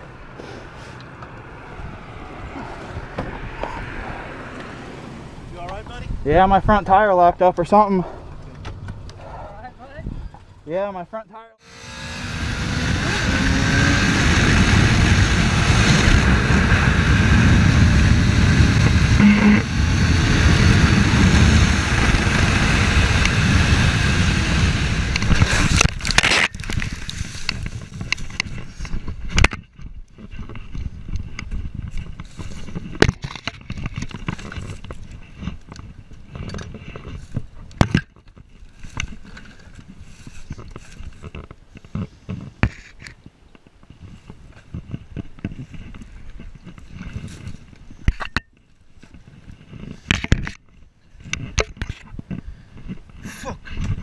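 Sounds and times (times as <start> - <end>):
wind rush: 11.7 - 37.5
crackling and scraping of brush: 25.0 - 54.0.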